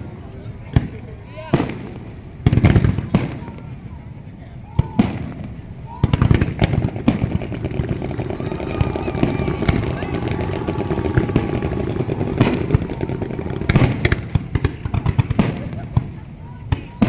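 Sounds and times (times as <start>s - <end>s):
fireworks bangs: 0.0s - 3.9s, 4.8s - 17.0s
fireworks crackling: 4.8s - 17.0s.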